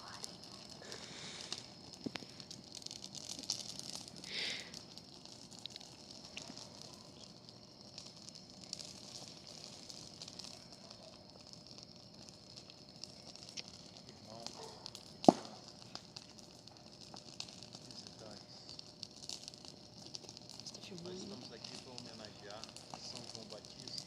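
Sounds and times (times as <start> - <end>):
bonfire crackling: 0.0 - 24.0
loud sharp pop: 15.2 - 15.6.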